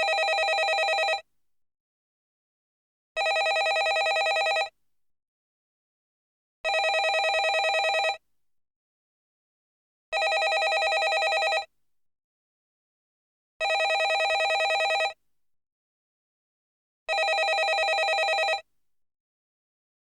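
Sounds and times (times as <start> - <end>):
landline telephone bell ringing: 0.0 - 1.2, 3.2 - 4.7, 6.7 - 8.2, 10.2 - 11.7, 13.6 - 15.2, 17.1 - 18.6.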